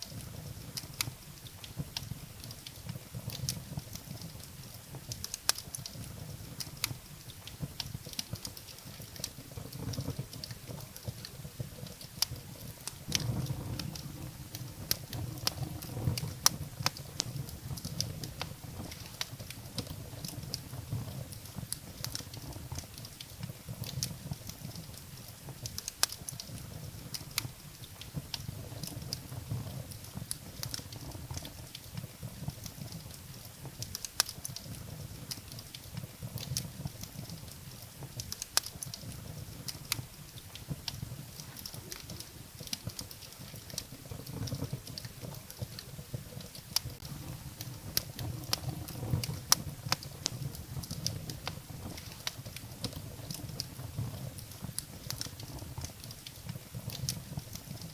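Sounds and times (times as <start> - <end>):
firewood crackling and popping: 0.0 - 57.9
low steady rumble: 12.4 - 21.6.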